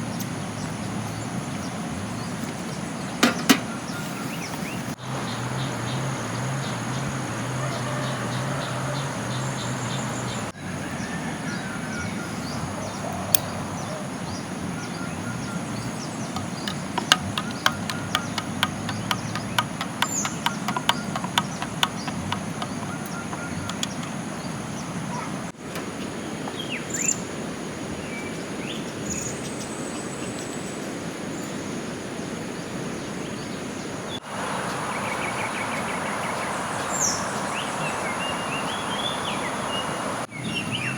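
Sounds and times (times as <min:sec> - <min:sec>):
watery hiss: 0:03.9 - 0:05.0
high insect drone: 0:05.0 - 0:10.5, 0:34.2 - 0:40.3
bird chirps: 0:14.8 - 0:25.3, 0:34.5 - 0:40.9
sharp taps: 0:16.4 - 0:24.2.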